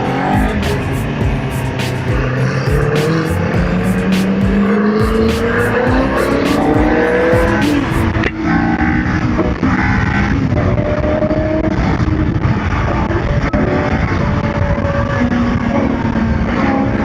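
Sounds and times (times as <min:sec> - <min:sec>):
background music: 0:00.0 - 0:08.3
vehicle engines accelerating: 0:00.0 - 0:17.0.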